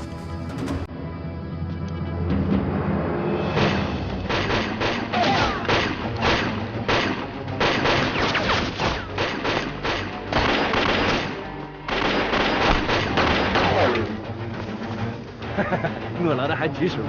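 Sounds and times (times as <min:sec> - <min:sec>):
dramatic film score: 0:00.0 - 0:17.0
rapid gunfire: 0:04.3 - 0:13.9.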